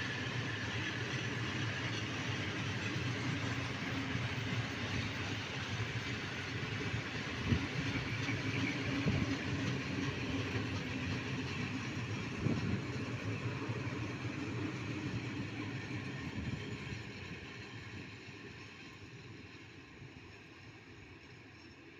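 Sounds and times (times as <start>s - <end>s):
train wheels rumbling: 0.0s - 19.5s.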